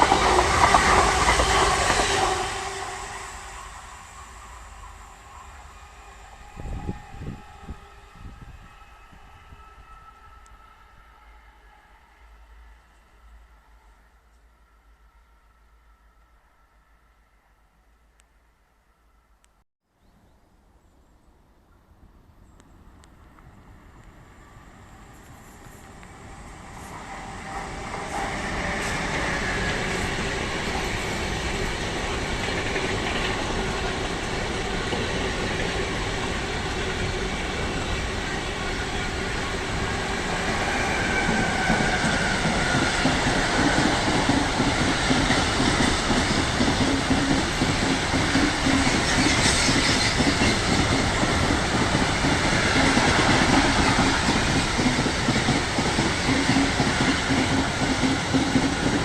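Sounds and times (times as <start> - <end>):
train wheels rumbling on track: 0.0 - 11.8, 22.6 - 59.0.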